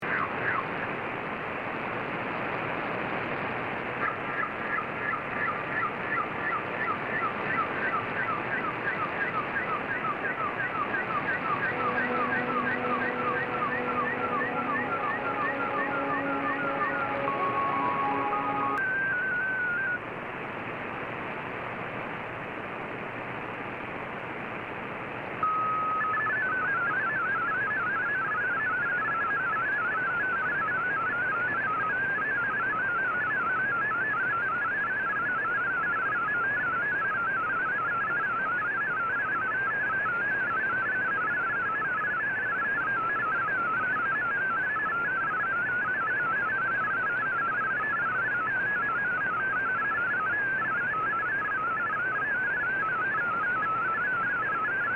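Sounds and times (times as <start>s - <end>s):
shortwave radio hiss: 0.1s - 25.4s
steady radio tone: 4.0s - 20.0s
warbling digital data tones: 9.6s - 20.0s.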